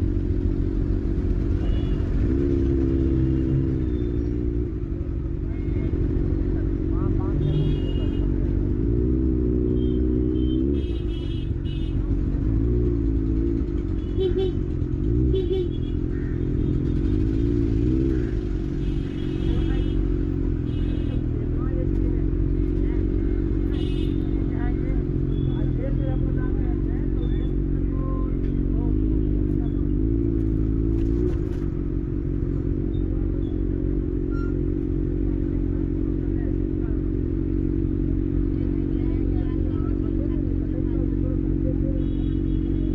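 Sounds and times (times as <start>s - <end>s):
engine droning in traffic: 0.0s - 42.9s
vehicle horn honks: 7.4s - 8.3s, 9.8s - 12.0s, 14.0s - 16.0s, 18.8s - 21.4s, 23.7s - 24.4s, 41.9s - 42.9s.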